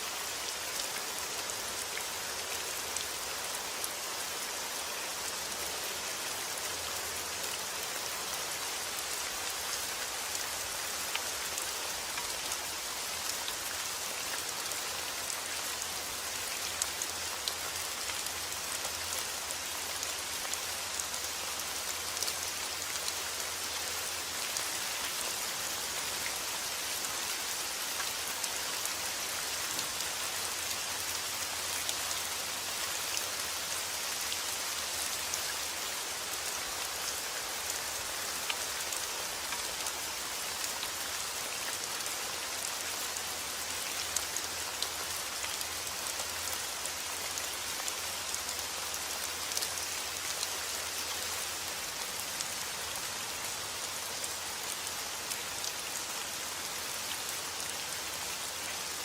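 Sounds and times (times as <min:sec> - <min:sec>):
steady rain hiss: 0:00.0 - 0:59.0
raindrops ticking on a surface: 0:08.9 - 0:52.7.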